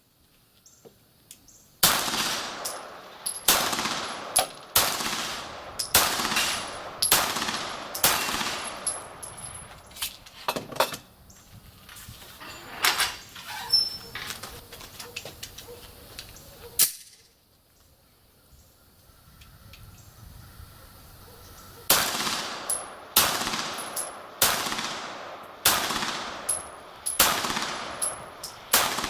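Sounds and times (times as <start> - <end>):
fainter sharp cracks: 1.8 - 9.2, 21.9 - 29.0
loud pistol shots with echo: 1.8 - 9.3, 21.9 - 29.0.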